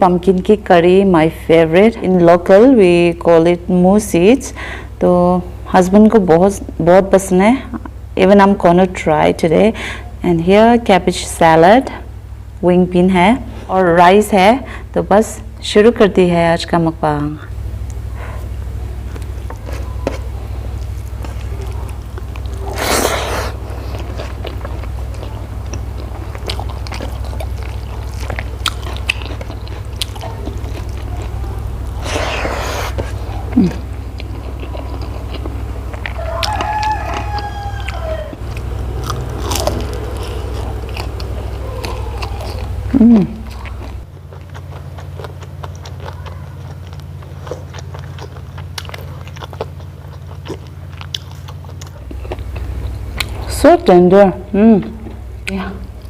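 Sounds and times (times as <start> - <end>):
steady low hum: 0.0 - 56.0
person chewing food: 17.9 - 53.5.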